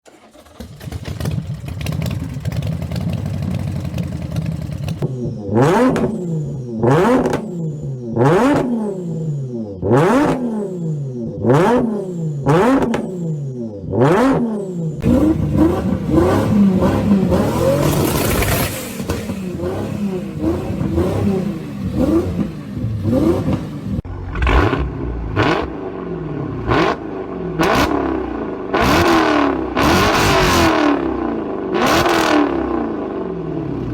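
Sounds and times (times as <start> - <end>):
engine idling and revving: 0.0 - 33.9.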